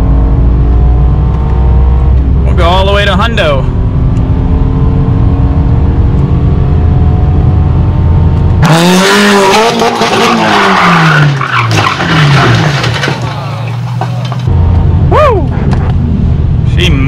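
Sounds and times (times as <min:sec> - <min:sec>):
car engine at full throttle: 0:00.0 - 0:17.0
car engine revving: 0:00.0 - 0:17.0
road rumble: 0:00.0 - 0:17.0
harsh tyre and scraping noise: 0:08.5 - 0:14.5.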